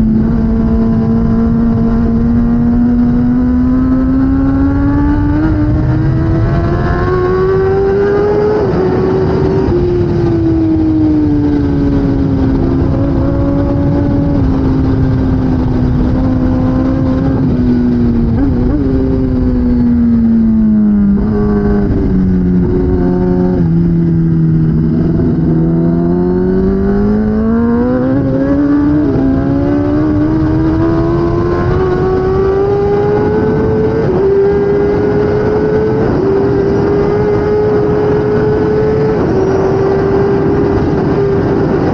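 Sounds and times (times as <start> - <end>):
motorcycle engine revving through gears: 0.0 - 41.9.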